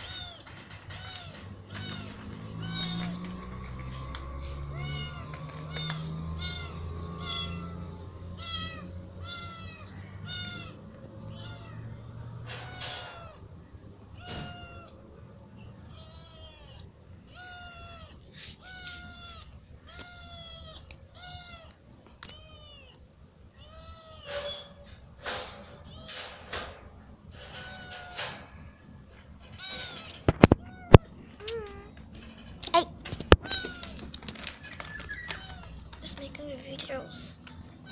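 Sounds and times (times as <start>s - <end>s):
kitten meowing: 4.7s - 11.9s, 14.2s - 15.0s, 15.9s - 23.0s, 33.3s - 34.0s, 34.8s - 35.8s.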